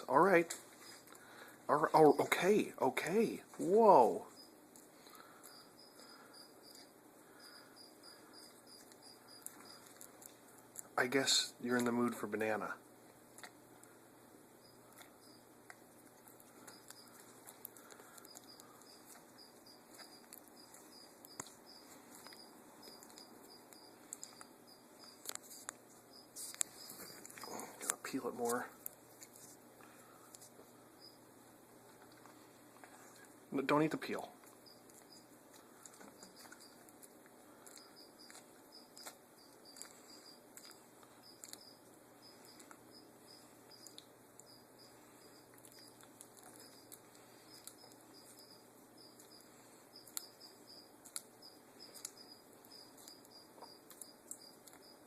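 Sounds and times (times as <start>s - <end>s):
faint high chirps: 3.6s - 10.1s, 16.4s - 25.3s, 32.9s - 55.0s
pet chewing softly: 11.6s - 55.0s.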